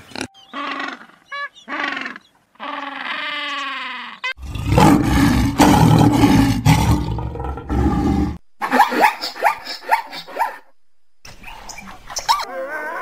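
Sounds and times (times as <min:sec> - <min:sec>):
lion roaring: 0:04.4 - 0:08.4.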